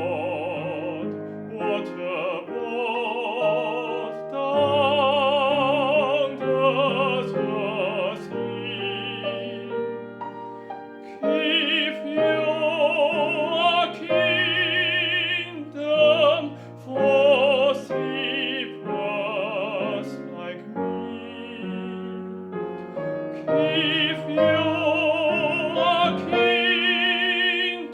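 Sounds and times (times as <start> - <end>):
operatic singer: 0.0 - 27.9
piano accompaniment: 0.0 - 27.9
singer breathing: 10.3 - 11.5, 16.5 - 16.9.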